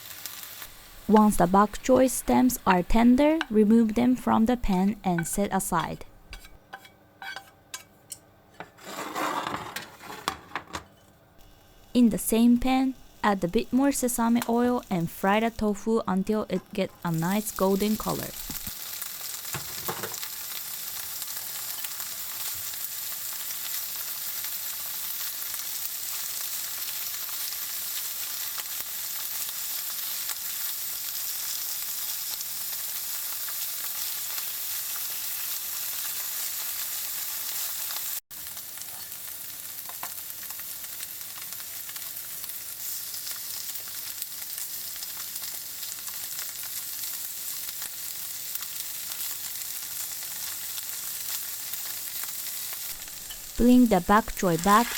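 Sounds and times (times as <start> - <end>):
tofu sizzling in a frying pan: 0.0 - 3.1, 11.4 - 12.0, 17.1 - 54.9.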